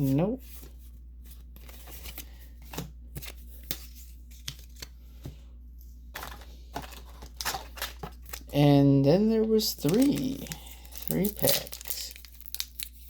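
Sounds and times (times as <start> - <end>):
foil wrapper rustling: 6.2 - 8.6, 9.4 - 13.0
cards clicking and snapping: 9.8 - 13.0.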